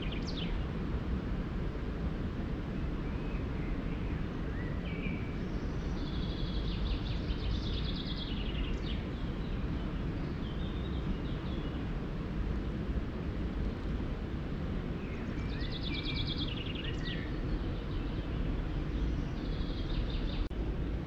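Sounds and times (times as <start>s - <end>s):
songbird singing: 0.0s - 0.8s, 2.9s - 12.0s, 14.9s - 20.6s
low outdoor background noise: 0.0s - 21.0s.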